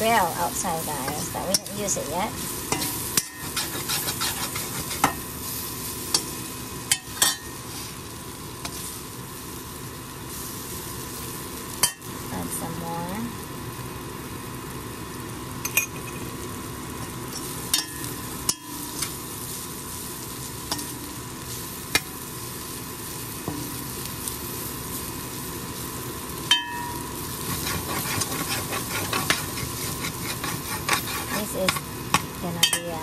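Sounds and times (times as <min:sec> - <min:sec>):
fish sizzling in hot oil: 0:00.0 - 0:33.0
spatula scraping a pan: 0:02.6 - 0:05.3, 0:27.3 - 0:32.9.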